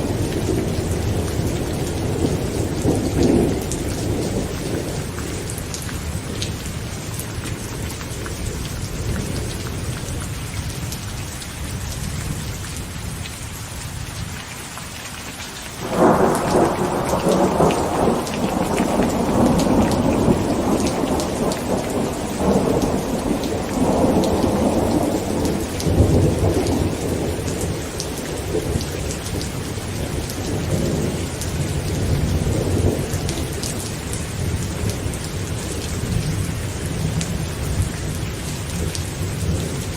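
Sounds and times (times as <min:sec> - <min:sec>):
loud thunderclap: 0:00.0 - 0:05.1, 0:15.8 - 0:29.4
low thunder rumbling: 0:00.0 - 0:10.2, 0:15.8 - 0:39.9
heavy rain on a tent: 0:00.0 - 0:39.9.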